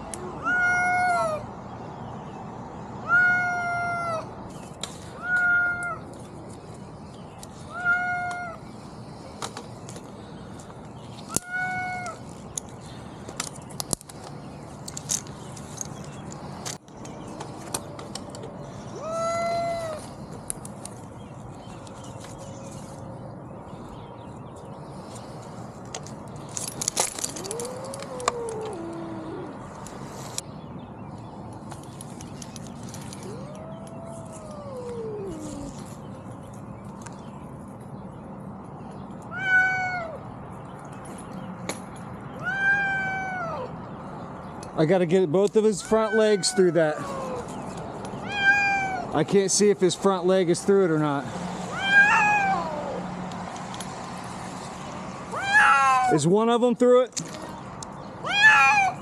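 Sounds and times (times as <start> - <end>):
cat meowing: 0.2 - 1.4, 3.0 - 4.3, 5.1 - 6.0, 7.7 - 8.6, 11.4 - 12.2, 18.9 - 20.0, 39.3 - 40.2, 42.4 - 43.7, 45.8 - 47.5, 48.2 - 49.2, 51.7 - 53.0, 55.3 - 56.2, 58.2 - 59.0.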